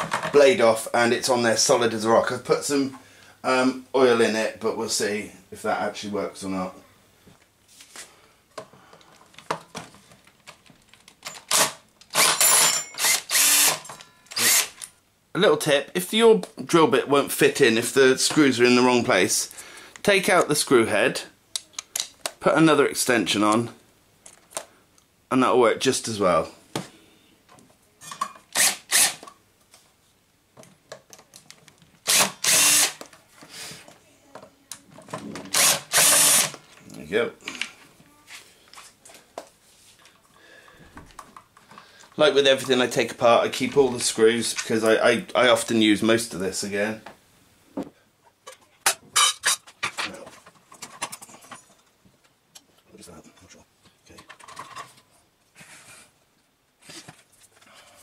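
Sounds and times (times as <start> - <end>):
drill bit and screw clicks: 11.2 - 14.9, 28.5 - 29.3, 32.0 - 33.1, 35.5 - 36.6
power drill driving screws: 11.4 - 14.8, 28.5 - 29.2, 32.0 - 33.1, 35.5 - 36.6
tools and metal parts clicking: 12.2 - 14.9
loud rasping burst: 13.0 - 14.8, 28.6 - 29.2, 32.0 - 33.0, 35.5 - 36.6.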